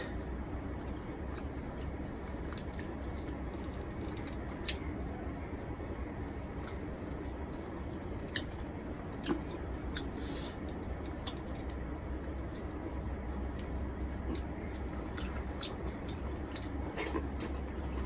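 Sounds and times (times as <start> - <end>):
person chewing: 0.8 - 18.0.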